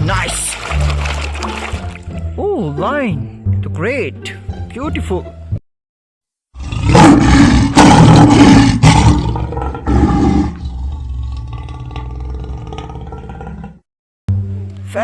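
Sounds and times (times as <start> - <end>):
lion roaring: 6.6 - 13.8.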